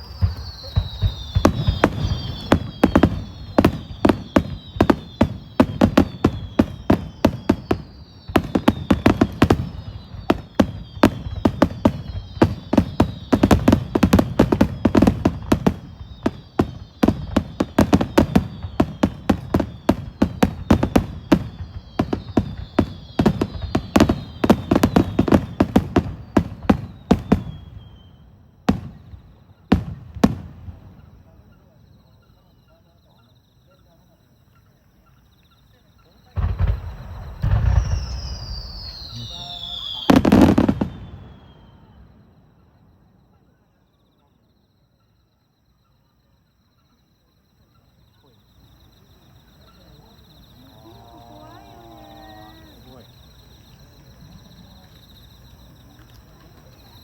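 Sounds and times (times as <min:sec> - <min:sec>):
fireworks bursting with bangs: 0:00.0 - 0:31.8, 0:36.3 - 0:43.0
falling firework whistles: 0:00.0 - 0:33.2, 0:35.8 - 0:43.6, 0:48.2 - 0:57.0.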